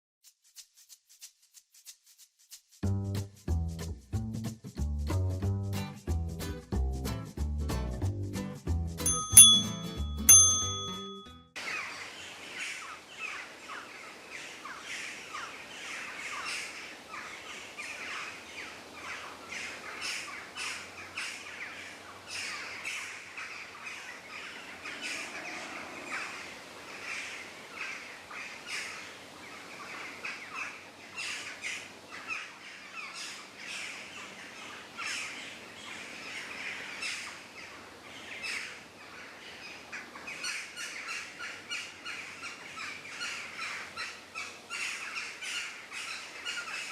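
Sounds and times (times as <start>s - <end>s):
faint steady hiss: 11.6s - 46.9s
birds chirping and calling: 11.7s - 46.9s.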